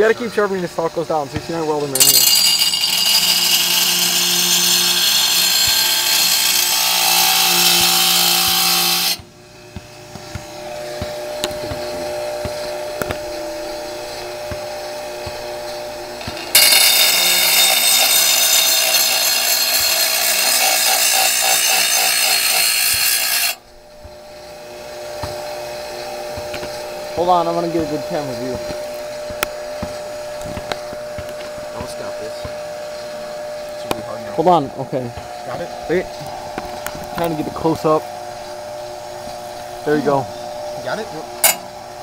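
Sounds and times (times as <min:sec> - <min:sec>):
grinder motor humming: 0:00.0 - 0:42.0
grinder grinding metal blade: 0:00.8 - 0:09.2, 0:10.6 - 0:31.0, 0:40.8 - 0:41.8.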